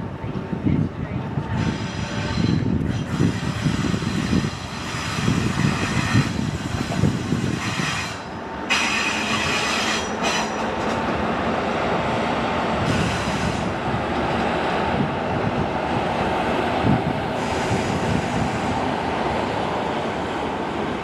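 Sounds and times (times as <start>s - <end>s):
train running noise: 0.0s - 21.0s
high wheel squeal: 1.6s - 10.7s
train wheels clattering over rail joints: 1.6s - 11.3s.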